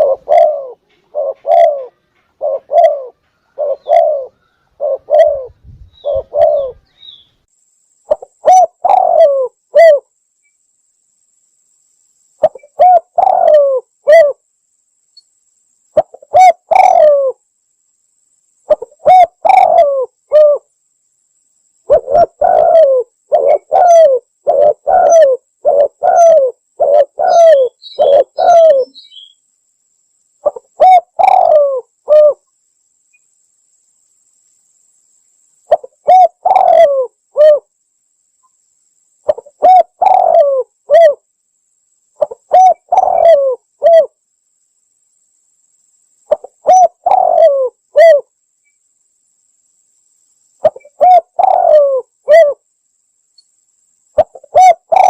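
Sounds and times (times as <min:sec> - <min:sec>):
dove cooing: 0:00.0 - 0:06.9, 0:08.1 - 0:10.1, 0:12.4 - 0:14.4, 0:16.0 - 0:17.4, 0:18.7 - 0:20.6, 0:21.9 - 0:29.3, 0:30.4 - 0:32.4, 0:35.7 - 0:37.7, 0:39.3 - 0:41.2, 0:42.2 - 0:44.1, 0:46.3 - 0:48.3, 0:50.6 - 0:52.6, 0:54.2 - 0:55.0.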